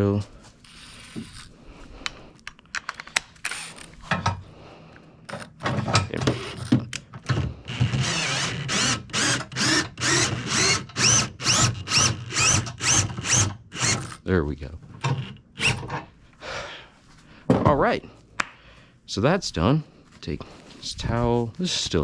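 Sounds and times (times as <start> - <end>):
drill handling clicks: 0.7 - 4.0, 5.3 - 14.2
cordless drill spinning up: 3.5 - 4.0, 7.6 - 14.2.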